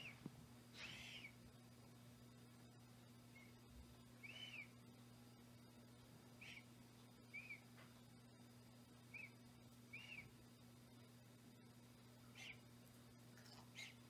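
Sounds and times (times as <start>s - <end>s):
low steady hum: 0.0s - 14.0s
bird chirps: 0.8s - 1.4s, 3.3s - 3.6s, 4.2s - 4.8s, 6.4s - 6.7s, 7.3s - 7.7s, 9.1s - 10.3s, 12.3s - 12.6s, 13.7s - 14.0s.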